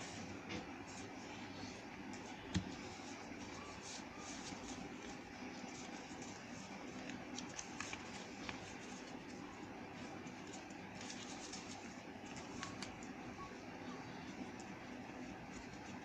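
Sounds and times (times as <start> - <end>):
steady background hum: 0.0 - 16.0
paper folding and creasing: 2.2 - 13.1.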